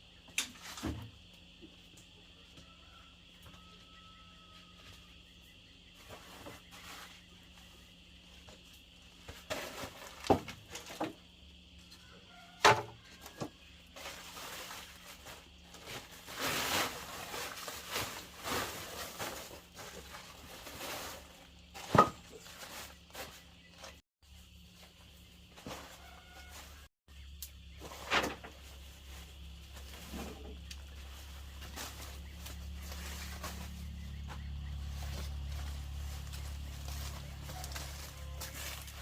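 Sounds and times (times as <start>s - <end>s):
scraping or rustling: 6.0s - 11.2s, 12.6s - 26.9s, 27.7s - 39.0s.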